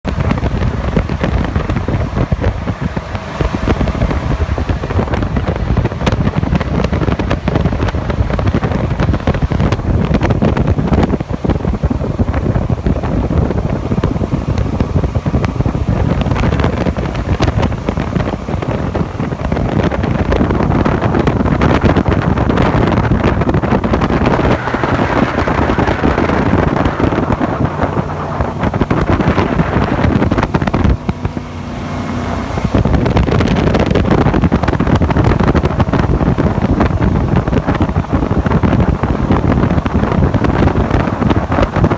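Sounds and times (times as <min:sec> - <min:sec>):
jet boat engine running: 0:00.0 - 0:41.9
wind buffeting microphone: 0:00.0 - 0:41.9.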